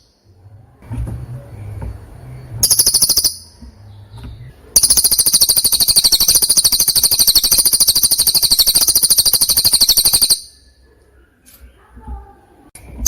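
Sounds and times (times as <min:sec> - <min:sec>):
songbird high-pitched trill: 0:02.6 - 0:03.6, 0:04.8 - 0:10.7.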